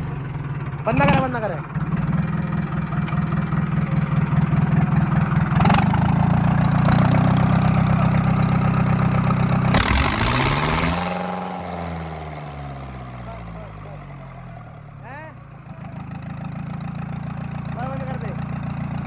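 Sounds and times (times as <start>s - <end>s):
tractor diesel engine running: 0.0s - 19.0s
turbo hissing rush: 9.8s - 13.7s.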